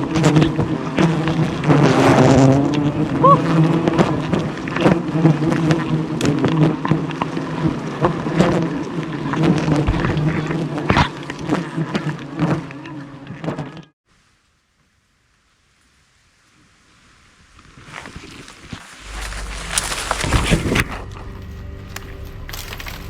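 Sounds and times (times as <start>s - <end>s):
bees buzzing: 0.0s - 13.8s, 18.8s - 23.0s.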